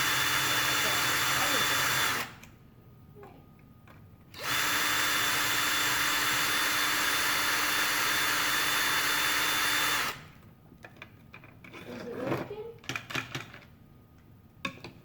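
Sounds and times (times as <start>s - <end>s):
electric drill running: 0.0s - 2.4s, 4.4s - 10.3s.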